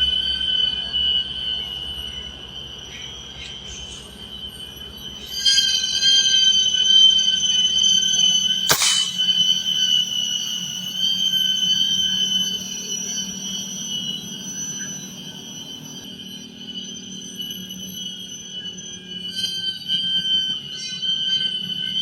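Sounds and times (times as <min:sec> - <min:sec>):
shrill insect chorus: 0:00.0 - 0:22.0
gunshot: 0:08.7 - 0:09.4.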